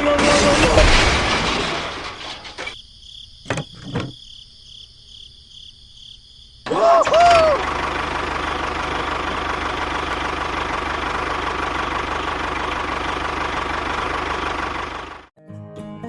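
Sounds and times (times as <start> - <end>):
engine idling with fast knock: 7.4 - 15.3.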